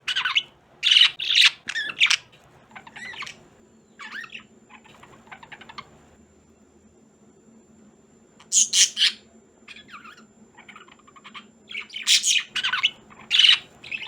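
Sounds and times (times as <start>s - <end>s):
budgerigars chattering and clicking: 0.1s - 3.4s, 4.0s - 5.9s, 8.4s - 14.0s
budgerigars squawking: 0.1s - 3.4s, 4.0s - 5.9s, 8.5s - 14.0s.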